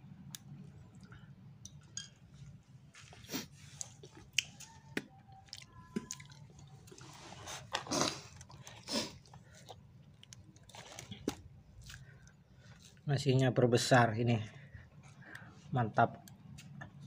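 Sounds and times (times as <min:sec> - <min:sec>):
person chewing food: 0:00.3 - 0:13.1.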